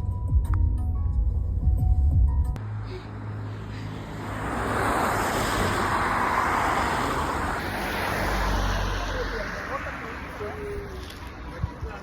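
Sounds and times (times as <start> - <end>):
vehicle passing: 2.6 - 12.0.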